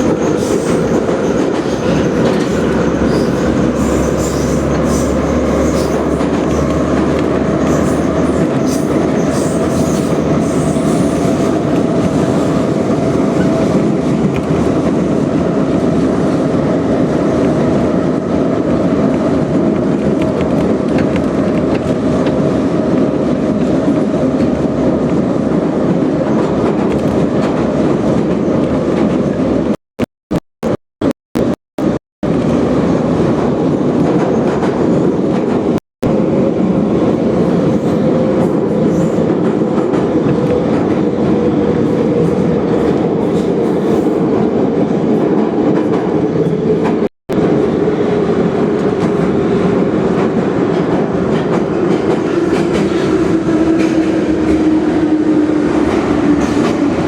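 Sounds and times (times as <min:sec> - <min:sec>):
train wheels rumbling: 0:32.3 - 0:57.0.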